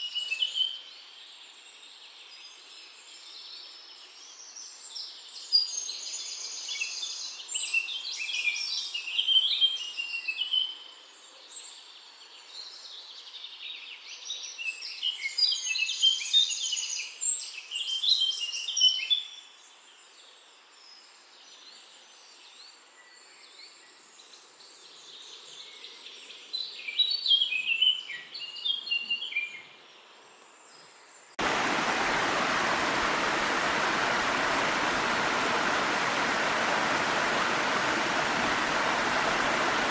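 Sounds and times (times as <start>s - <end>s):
songbirds chirping: 23.8s - 39.9s
waterfall rushing: 31.4s - 39.9s.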